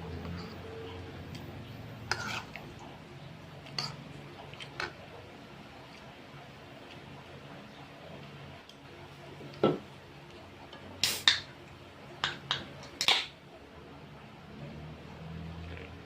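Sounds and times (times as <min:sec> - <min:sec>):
person eating with clicks and smacks: 0:03.6 - 0:05.1.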